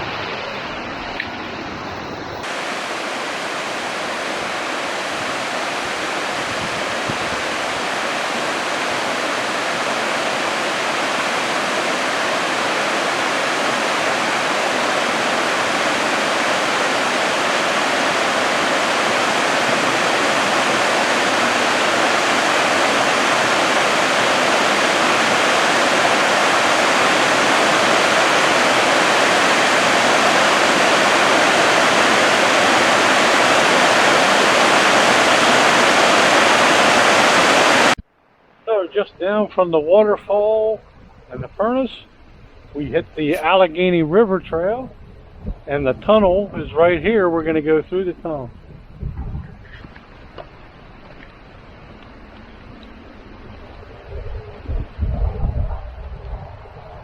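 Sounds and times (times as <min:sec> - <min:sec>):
flowing falling water: 0:00.0 - 0:38.0.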